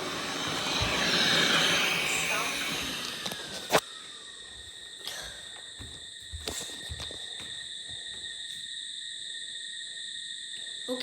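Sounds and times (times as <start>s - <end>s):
robot vacuum whining: 0.0s - 3.8s.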